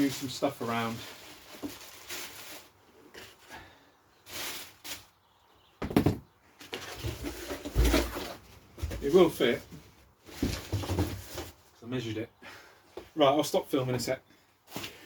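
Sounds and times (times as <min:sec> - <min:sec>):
rustling while packing: 0:00.0 - 0:05.2, 0:06.6 - 0:11.7
clatter of objects: 0:05.8 - 0:09.2, 0:10.3 - 0:11.7.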